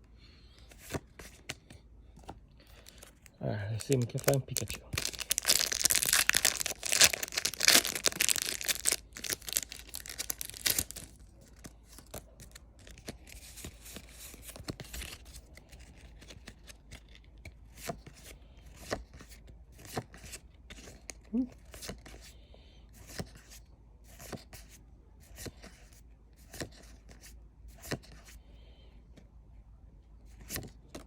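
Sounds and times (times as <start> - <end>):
cards rustling: 0.5 - 22.2
foil wrapper tearing: 3.8 - 11.1.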